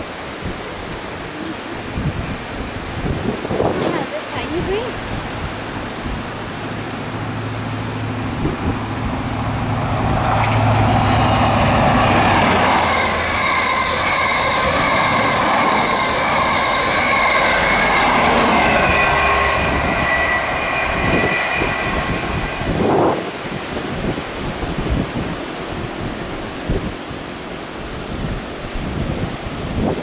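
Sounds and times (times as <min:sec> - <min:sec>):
train wheels rushing on rails: 0:00.0 - 0:30.0
diesel engine low tone: 0:05.0 - 0:23.5
high ringing tones: 0:05.7 - 0:23.5.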